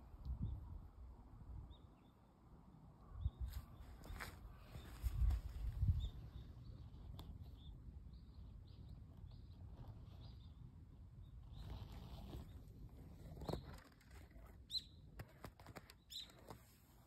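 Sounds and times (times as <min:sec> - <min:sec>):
wind rumble on microphone: 0:00.0 - 0:01.9, 0:03.0 - 0:10.6
small bird chirping: 0:03.0 - 0:16.7.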